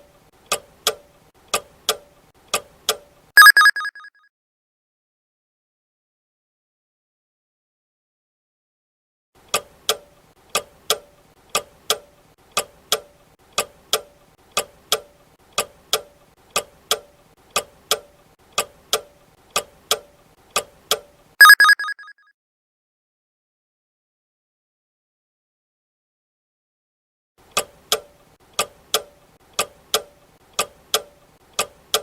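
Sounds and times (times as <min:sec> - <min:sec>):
clock ticking: 0:09.5 - 0:21.9, 0:27.5 - 0:32.0.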